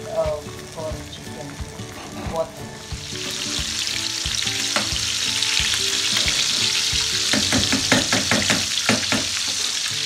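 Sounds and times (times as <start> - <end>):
chicken sizzling in oil: 0.0 - 10.0
metal tongs scraping pan: 1.8 - 3.6, 5.9 - 8.5.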